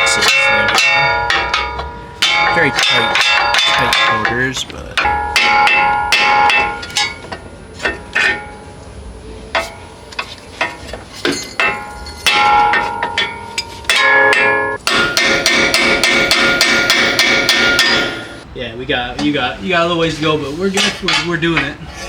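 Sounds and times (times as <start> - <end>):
hammer striking steel chisel: 10.6 - 18.4.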